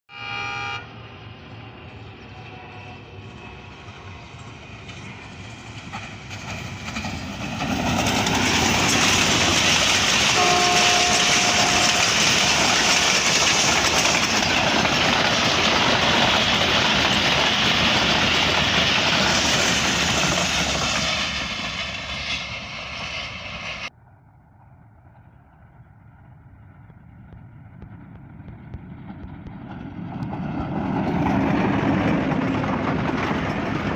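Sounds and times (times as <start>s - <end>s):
train horn: 0.1s - 1.1s, 2.3s - 3.8s, 10.3s - 13.7s
train wheels clattering on track: 2.1s - 23.9s, 26.8s - 33.9s.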